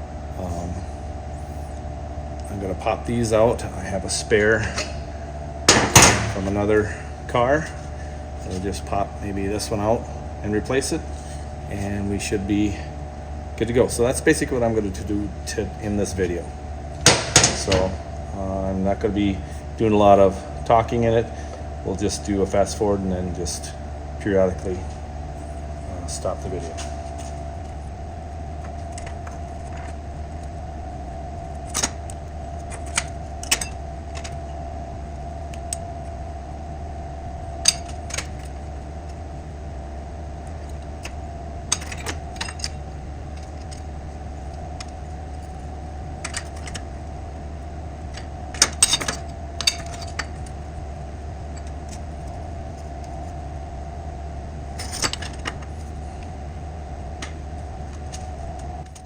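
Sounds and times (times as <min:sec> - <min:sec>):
steady hum: 0:00.0 - 0:59.0
metal parts clinking: 0:05.7 - 0:06.9, 0:17.0 - 0:18.0, 0:32.6 - 0:34.4, 0:37.6 - 0:38.6, 0:41.7 - 0:42.8, 0:48.1 - 0:50.5, 0:54.8 - 0:56.0.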